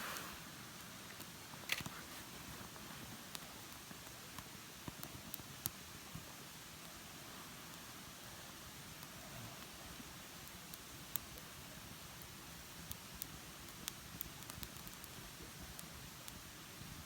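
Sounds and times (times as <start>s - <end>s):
faint steady hiss: 0.0s - 17.0s
campfire crackling and popping: 2.6s - 6.9s, 8.8s - 16.5s.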